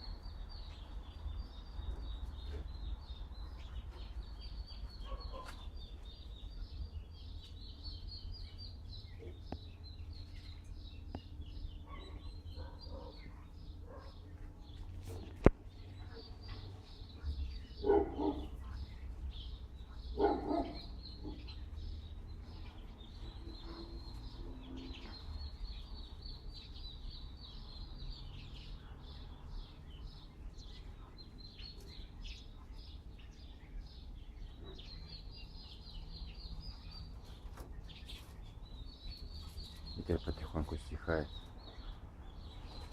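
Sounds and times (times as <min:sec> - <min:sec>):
small birds chirping: 0:00.0 - 0:42.9
dog barking: 0:05.0 - 0:05.6, 0:11.8 - 0:14.3, 0:17.8 - 0:18.6, 0:20.1 - 0:21.5.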